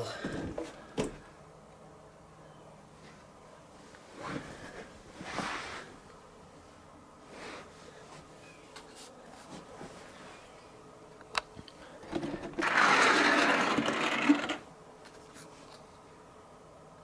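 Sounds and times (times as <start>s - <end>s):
small motor whirring: 12.6s - 14.6s.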